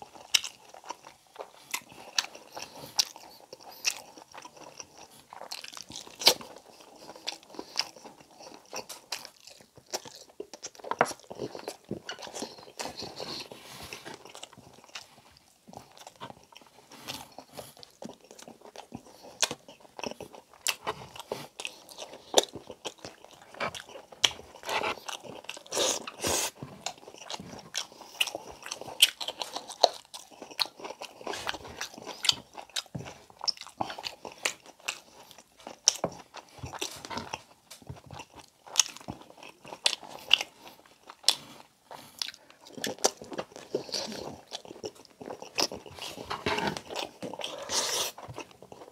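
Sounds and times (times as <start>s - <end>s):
person biting and chewing: 15.7s - 48.9s.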